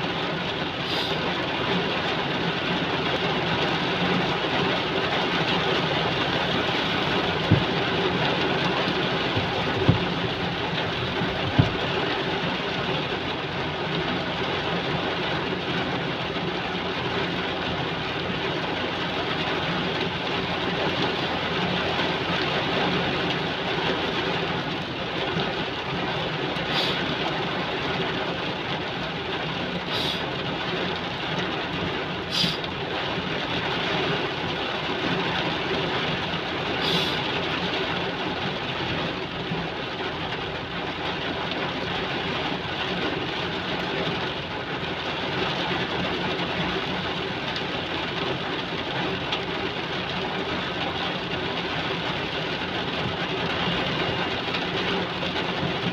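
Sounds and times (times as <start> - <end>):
heavy rain hissing: 0.1 - 15.2, 20.5 - 33.8, 36.2 - 40.2.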